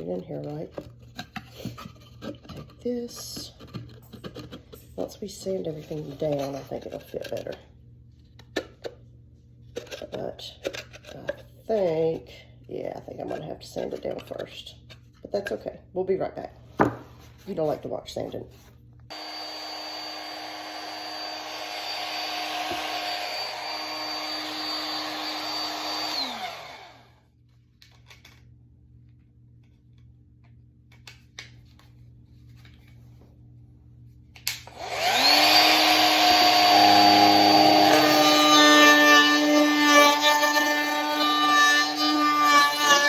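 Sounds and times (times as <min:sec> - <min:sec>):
electric sander whining: 0:19.1 - 0:27.1, 0:34.7 - 0:43.0.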